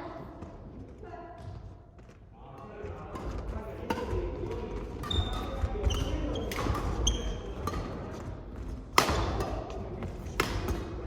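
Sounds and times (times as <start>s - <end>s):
shoes squeaking on court floor: 5.0s - 8.8s
racket striking shuttlecock: 8.9s - 11.0s.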